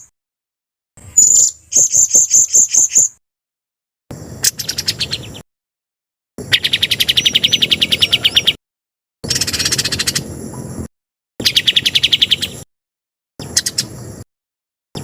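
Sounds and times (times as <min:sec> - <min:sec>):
songbird trilling: 0:01.0 - 0:03.2, 0:04.4 - 0:05.4, 0:06.4 - 0:08.6, 0:09.2 - 0:10.7, 0:11.4 - 0:12.7, 0:13.4 - 0:14.2
bird whistles: 0:01.2 - 0:03.2, 0:04.4 - 0:05.4, 0:06.5 - 0:08.6, 0:09.3 - 0:10.2, 0:11.4 - 0:12.6, 0:13.4 - 0:14.0.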